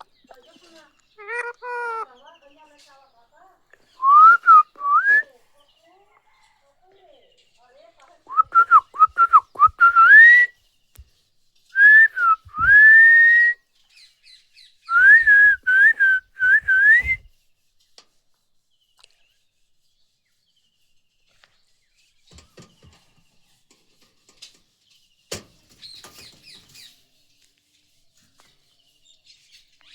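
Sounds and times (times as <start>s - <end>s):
clear whistling: 4.0s - 5.3s, 8.3s - 10.5s, 11.8s - 13.6s, 14.9s - 17.3s.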